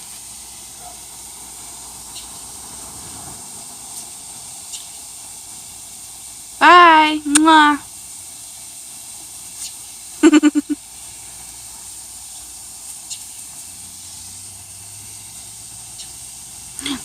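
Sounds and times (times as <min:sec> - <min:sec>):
steady background hiss: 0:00.0 - 0:17.0
quick pitched calls: 0:10.2 - 0:10.8.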